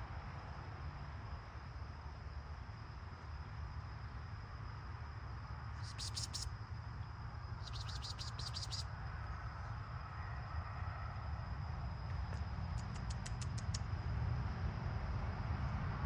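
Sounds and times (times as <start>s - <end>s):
low outdoor rumble: 0.0s - 16.0s
steady high insect whine: 0.0s - 16.0s
high-pitched insect chirping: 3.4s - 9.7s.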